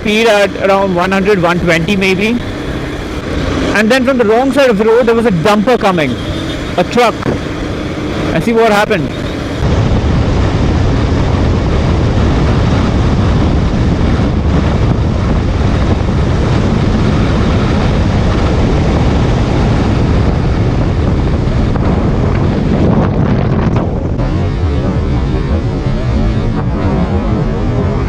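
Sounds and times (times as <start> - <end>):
wind noise over microphone: 6.0 - 8.3, 8.9 - 28.0.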